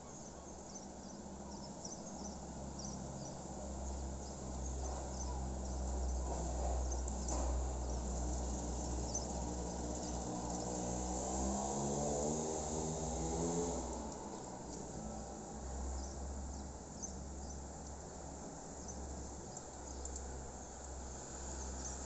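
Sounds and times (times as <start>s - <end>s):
birds or crickets chirping: 0.0s - 11.1s, 15.8s - 22.0s.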